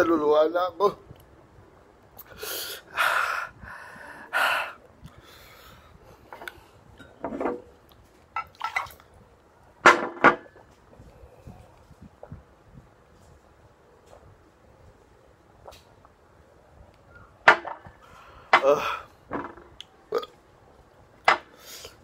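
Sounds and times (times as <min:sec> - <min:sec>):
man panting and hissing: 0:02.2 - 0:06.0.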